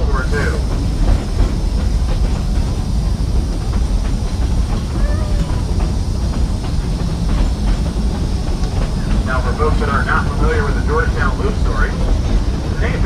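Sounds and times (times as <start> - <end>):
train rumbling along track: 0.0 - 13.0
faint voice: 4.9 - 5.6.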